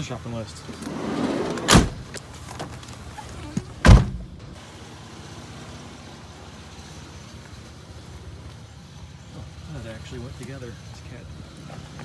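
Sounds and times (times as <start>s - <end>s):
heavy thump: 1.0s - 2.2s, 3.8s - 4.6s.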